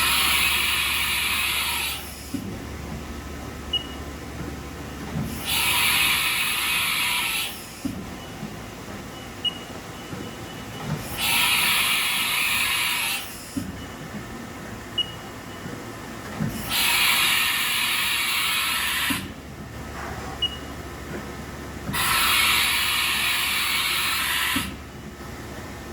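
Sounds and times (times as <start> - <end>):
machine hissing blasts: 0.0 - 2.4, 5.2 - 7.9, 11.0 - 13.6, 16.5 - 19.3, 21.9 - 24.8.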